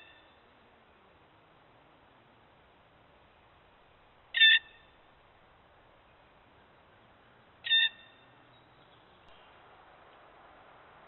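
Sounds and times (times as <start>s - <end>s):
bird harsh calls: 4.3s - 5.0s, 7.6s - 9.6s.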